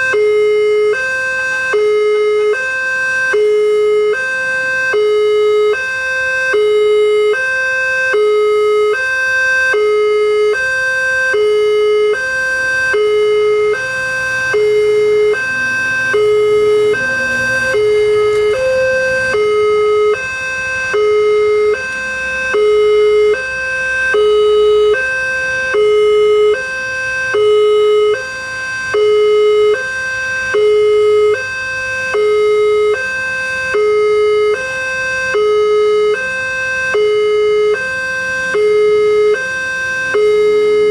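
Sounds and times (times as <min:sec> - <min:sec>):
level crossing two-tone alarm: 0:11.3 - 0:21.9.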